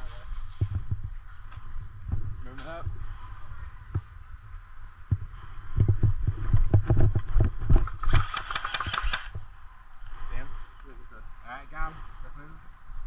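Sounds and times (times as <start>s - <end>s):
heavy thumps on the microphone: 0.5s - 1.2s, 5.1s - 7.9s
fast sharp clicks: 7.8s - 9.4s.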